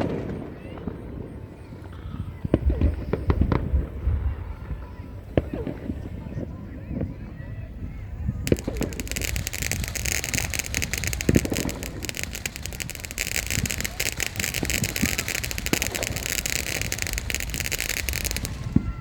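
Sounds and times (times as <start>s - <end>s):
fireworks crackling: 8.5s - 19.0s.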